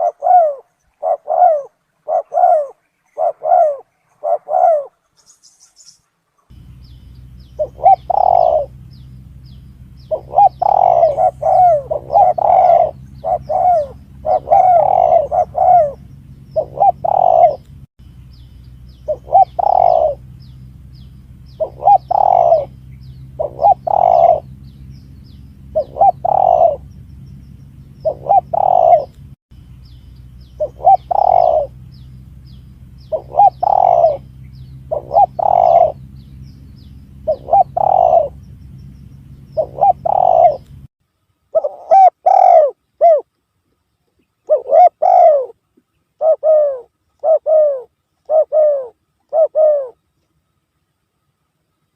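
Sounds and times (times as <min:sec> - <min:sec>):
dove cooing: 0:00.0 - 0:05.4, 0:06.5 - 0:17.8, 0:18.9 - 0:27.1, 0:27.8 - 0:29.3, 0:30.4 - 0:38.5, 0:39.2 - 0:40.9, 0:41.5 - 0:43.3, 0:44.4 - 0:45.6, 0:46.2 - 0:50.0
steady low hum: 0:00.0 - 0:51.9.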